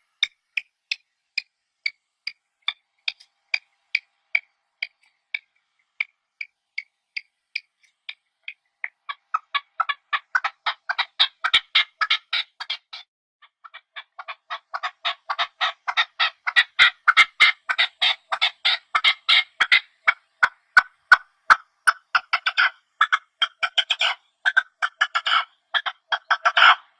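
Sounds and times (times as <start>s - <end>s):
partridge chattering calls: 8.4s - 13.0s, 13.6s - 26.9s.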